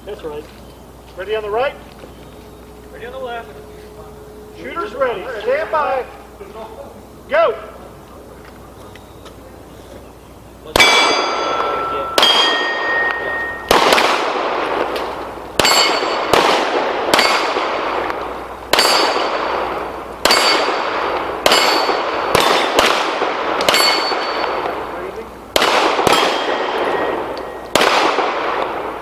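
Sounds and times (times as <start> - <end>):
pistol shots echoing: 10.7 - 29.0
steel plates ringing: 10.8 - 14.0, 15.0 - 16.4, 17.1 - 17.8, 18.6 - 22.8, 23.6 - 24.9, 26.1 - 27.8.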